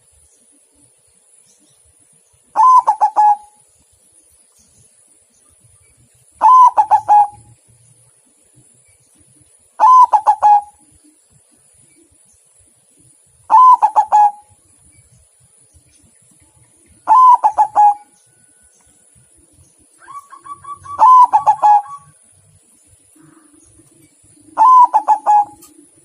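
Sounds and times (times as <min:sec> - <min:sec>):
dove cooing: 0:02.5 - 0:03.6, 0:06.4 - 0:07.6, 0:09.8 - 0:11.0, 0:13.5 - 0:14.6, 0:17.0 - 0:18.2, 0:20.0 - 0:22.2, 0:23.1 - 0:26.0.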